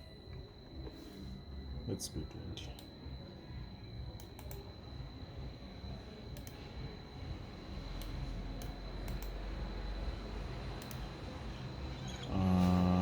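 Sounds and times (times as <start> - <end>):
faint high whine: 0.0 - 13.0
computer keys and mouse clicks: 4.2 - 4.7, 6.4 - 6.6, 8.0 - 9.4, 10.8 - 11.1.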